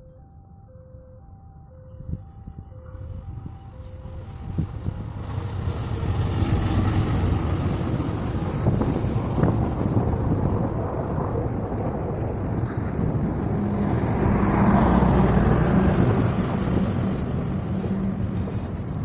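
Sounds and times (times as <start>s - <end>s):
locomotive and train rumbling past: 2.8s - 19.0s
steady engine hum: 4.1s - 19.0s.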